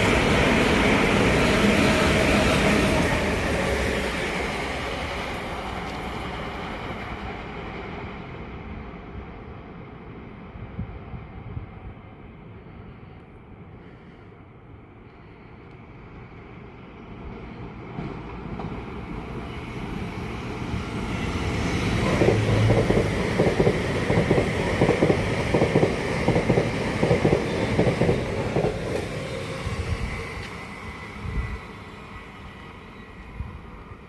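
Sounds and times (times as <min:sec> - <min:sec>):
train wheel clatter and rumble: 0:17.2 - 0:31.6.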